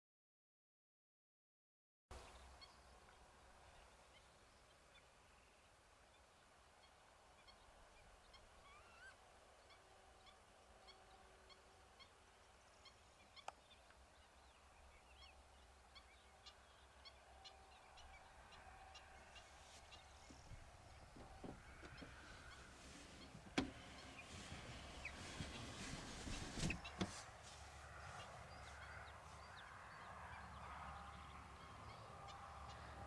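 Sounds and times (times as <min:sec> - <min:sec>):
faint bird chirps: 0:02.2 - 0:23.3.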